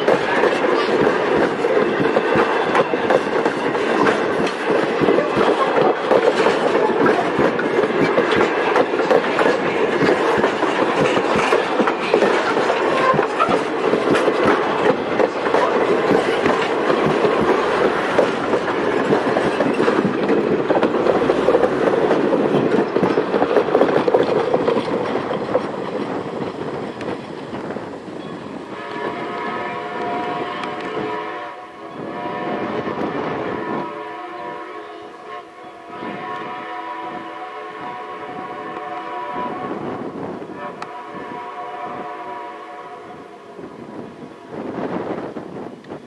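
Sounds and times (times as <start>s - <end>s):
wheels clicking over rail joints: 0.0s - 29.5s
train rolling past: 0.0s - 46.0s.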